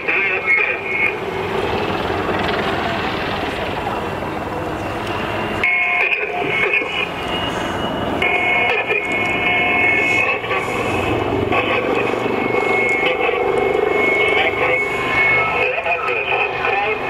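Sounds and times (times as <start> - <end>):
helicopter flying: 0.0 - 17.0.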